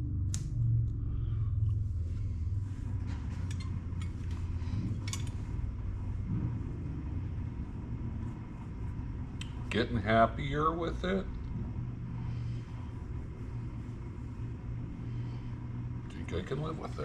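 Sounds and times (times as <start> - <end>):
low rumble of shop background: 0.0 - 17.0
metal parts clicking and tapping: 3.4 - 5.4.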